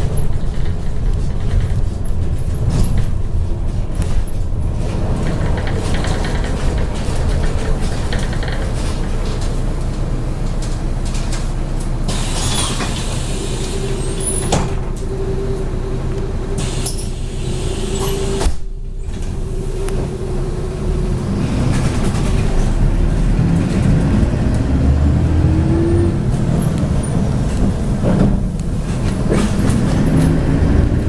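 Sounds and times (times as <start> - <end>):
bus engine and road rumble: 0.0 - 31.0
whine rising in pitch: 13.6 - 23.0.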